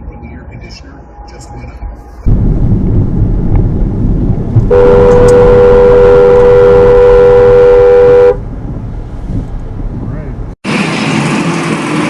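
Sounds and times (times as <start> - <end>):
road and engine rumble: 0.0 - 12.0
car horn: 4.7 - 8.4.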